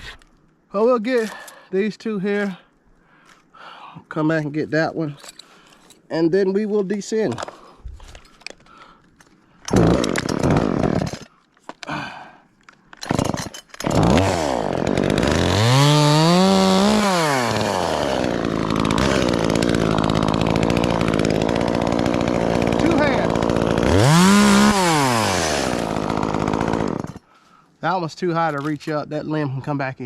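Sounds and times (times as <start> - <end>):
chainsaw starting and revving: 9.7 - 11.3, 13.0 - 27.3.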